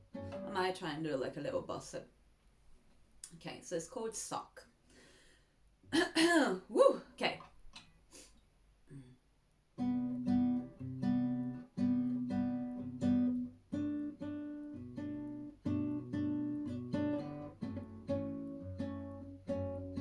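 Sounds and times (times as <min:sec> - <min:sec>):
acoustic guitar plucked chords: 0:00.0 - 0:00.8, 0:09.8 - 0:20.0.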